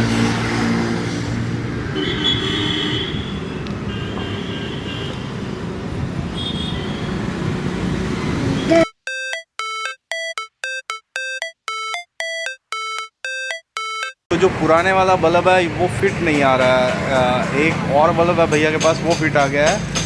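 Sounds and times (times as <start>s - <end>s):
low traffic hum: 0.0s - 8.8s, 14.3s - 20.0s
electronic beeping melody: 8.7s - 14.3s.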